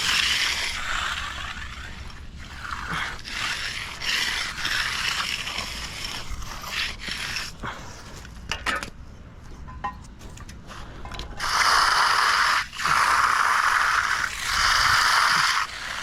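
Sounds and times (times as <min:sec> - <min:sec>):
scraping and rubbing: 0:00.0 - 0:08.5.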